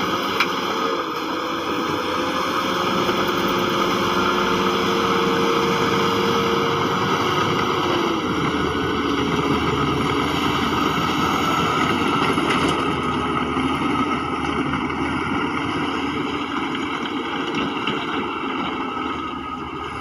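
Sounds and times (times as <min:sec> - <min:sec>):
diesel machinery engine running: 0:00.0 - 0:20.0.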